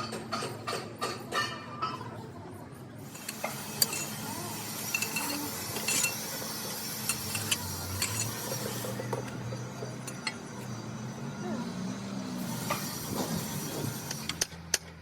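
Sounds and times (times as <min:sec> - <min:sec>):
metal tools clinking: 0:03.1 - 0:08.9, 0:10.0 - 0:10.4.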